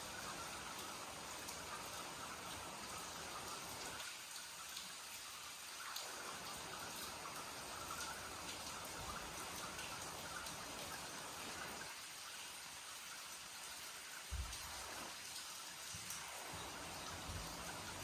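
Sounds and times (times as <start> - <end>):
steady rain falling: 0.0 - 18.0
drops pattering and dripping: 13.1 - 18.0.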